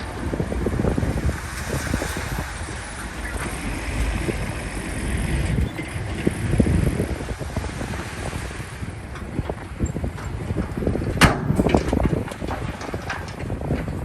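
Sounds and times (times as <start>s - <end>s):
diesel engine rumble: 0.0s - 14.0s
wind buffeting microphone: 0.0s - 14.0s
knocks and clanks: 9.1s - 14.0s.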